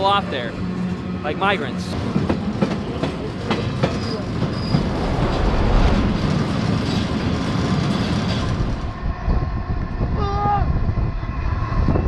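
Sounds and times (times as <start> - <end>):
train wheels rumbling: 1.9 - 9.2.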